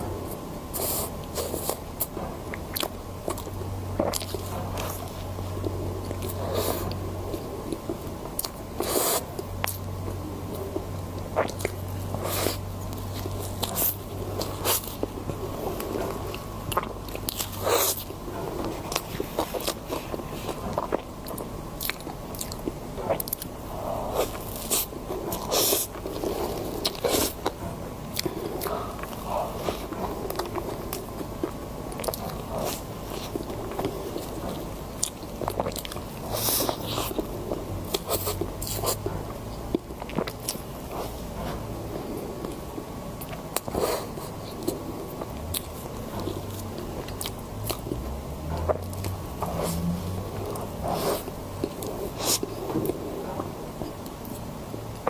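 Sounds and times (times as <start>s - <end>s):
crisp crunching and chewing: 0.3s - 55.0s.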